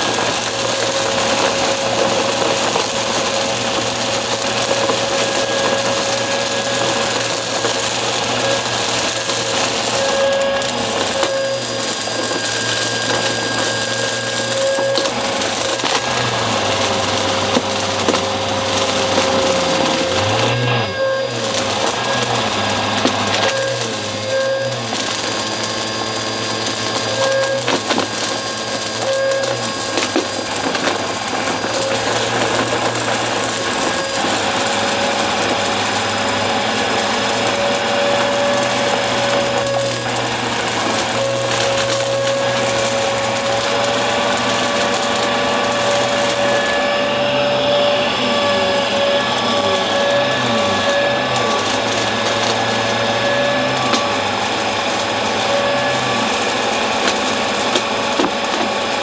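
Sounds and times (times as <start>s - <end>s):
debris crackling in vacuum: 0.0s - 59.0s
vacuum cleaner motor whine: 0.0s - 59.0s.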